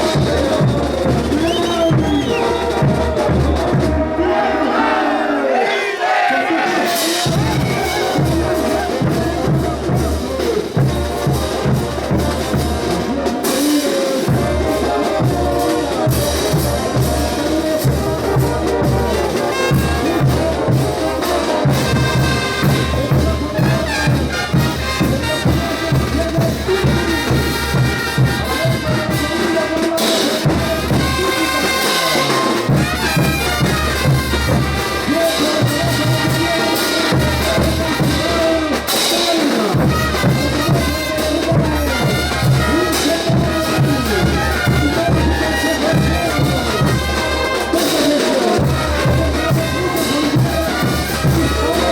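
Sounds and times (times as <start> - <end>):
bass drum beat: 0.0 - 4.2, 7.2 - 13.0
trumpets and trombones melody: 0.0 - 5.3, 5.9 - 51.9.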